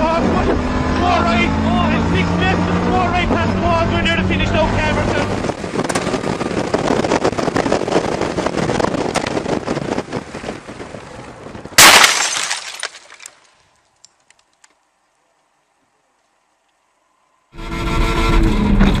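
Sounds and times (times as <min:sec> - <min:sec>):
rally car engine and road noise: 0:00.0 - 0:11.8, 0:17.6 - 0:19.0
car crash with glass breaking: 0:11.8 - 0:13.3
falling debris clinking: 0:11.8 - 0:13.5.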